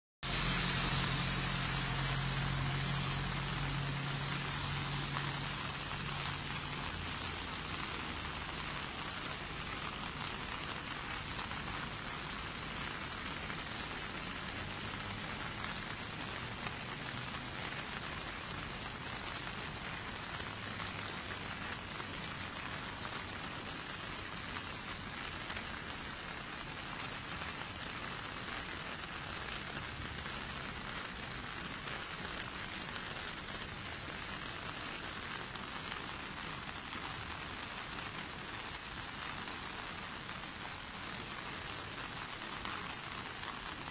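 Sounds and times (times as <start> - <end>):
water rushing: 0.2 - 27.8.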